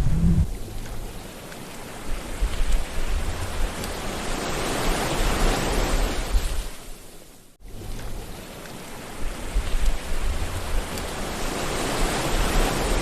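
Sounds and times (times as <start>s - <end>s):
low rumble: 0.0s - 1.2s
sea waves washing ashore: 0.0s - 13.0s.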